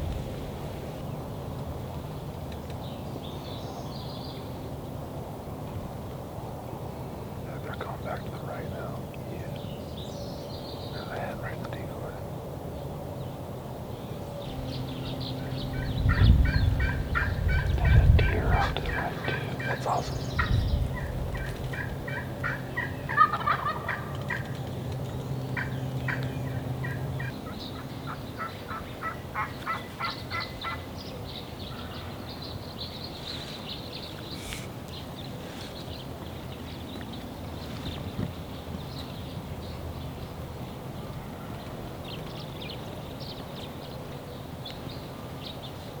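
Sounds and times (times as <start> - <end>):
steady low hum: 0.0 - 41.2
turkeys gobbling: 15.4 - 24.7, 25.6 - 30.8.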